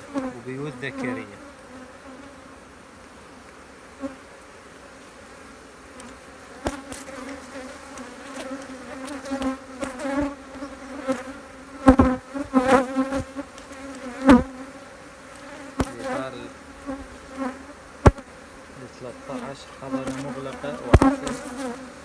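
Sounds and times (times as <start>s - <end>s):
honeybees buzzing: 0.0s - 22.0s
wooden hive frames knocking: 15.4s - 18.4s, 19.1s - 21.8s.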